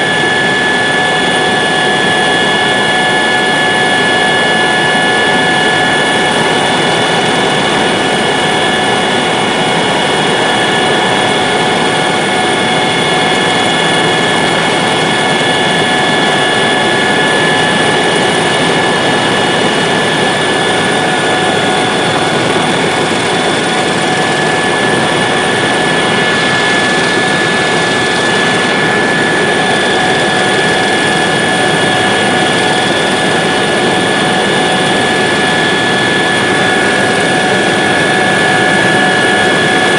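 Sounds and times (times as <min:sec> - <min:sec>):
helicopter engine and rotor noise: 0:00.0 - 0:39.9
high-pitched whines: 0:00.0 - 0:39.9.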